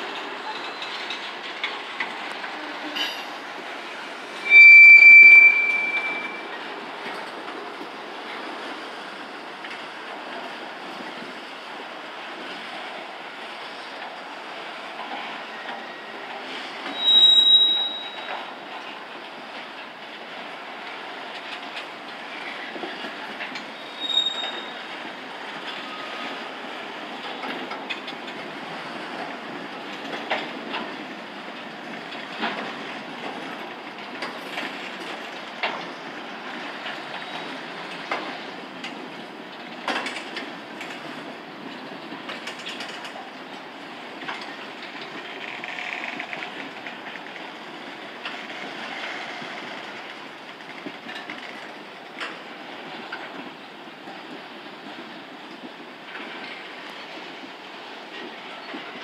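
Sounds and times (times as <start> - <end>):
wheels clanking over rail joints: 0.0 - 8.8, 13.8 - 59.0
train cars rumbling: 0.0 - 59.0
high wheel squeal: 0.4 - 1.2, 4.4 - 6.6, 16.8 - 18.5, 23.7 - 25.0.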